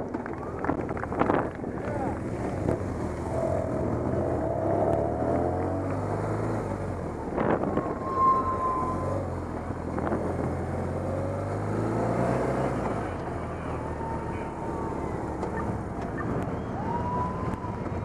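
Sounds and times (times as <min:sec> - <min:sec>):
motorcycle engines running: 0:00.0 - 0:18.0
short high steady tones: 0:07.7 - 0:09.5.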